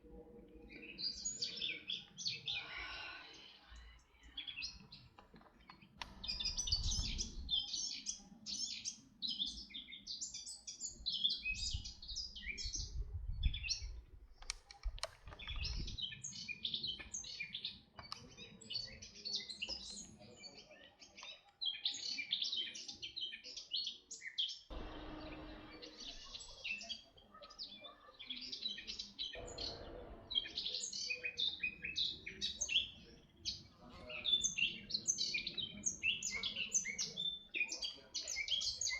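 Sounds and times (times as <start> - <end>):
small birds chirping and singing: 0.0 - 38.9
low rumbles: 24.7 - 26.5.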